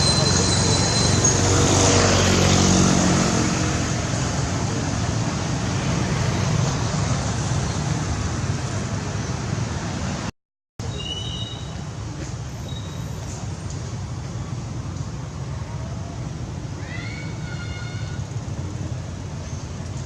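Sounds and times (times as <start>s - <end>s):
outdoor traffic noise: 0.0s - 20.0s.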